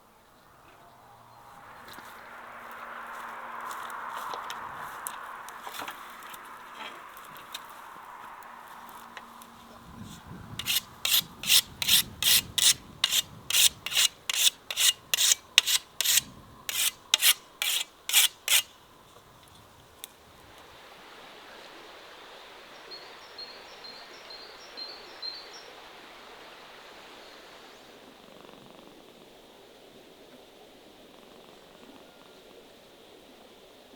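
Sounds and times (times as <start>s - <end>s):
faint steady hiss: 0.0s - 33.9s
rhythmic scraping strokes: 10.6s - 18.7s.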